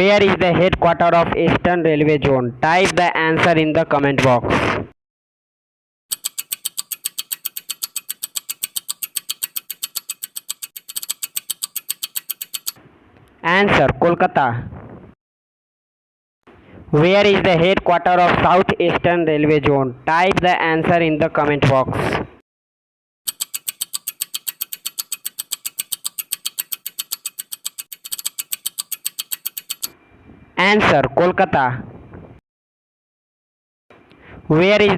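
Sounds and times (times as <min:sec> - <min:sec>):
rapid timer ticking: 0:06.1 - 0:12.8, 0:23.3 - 0:30.0.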